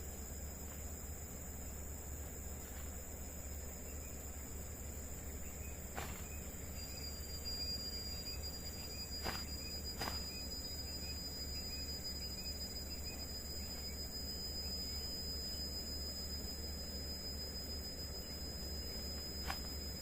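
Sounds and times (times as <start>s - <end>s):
insects buzzing chorus: 0.0s - 20.0s
faint chirps: 2.5s - 16.4s.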